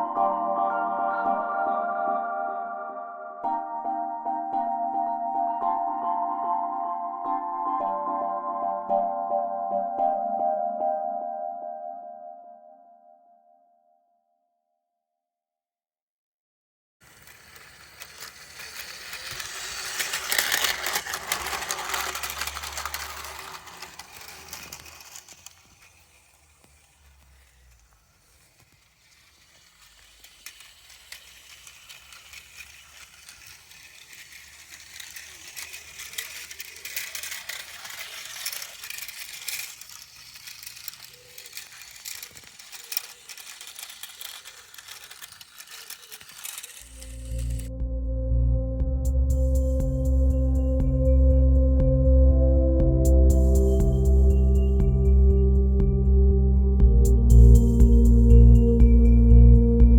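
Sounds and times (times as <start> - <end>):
toy train clicking and rattling: 17.0 - 47.7.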